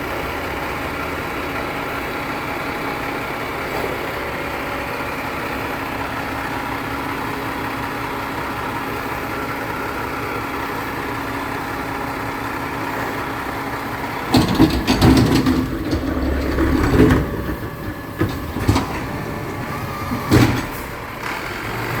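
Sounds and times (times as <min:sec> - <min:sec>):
garbage truck engine running: 0:00.0 - 0:22.0
metallic clanks and bangs: 0:14.2 - 0:21.0.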